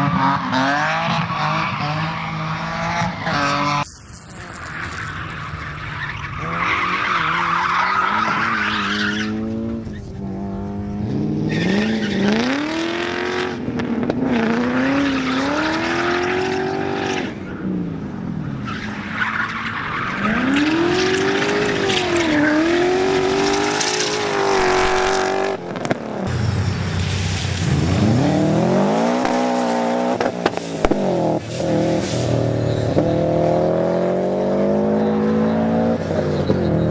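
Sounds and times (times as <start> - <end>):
car engine revving: 0.0 - 19.0, 19.6 - 36.9
tyres squealing: 3.2 - 9.4.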